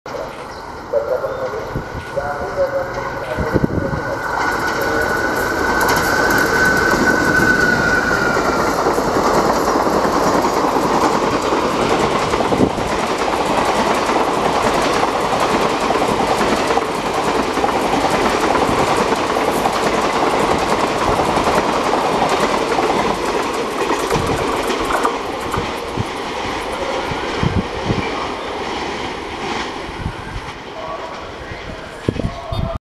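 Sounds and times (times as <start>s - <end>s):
coaches clattering over rail joints: 2.0s - 29.8s.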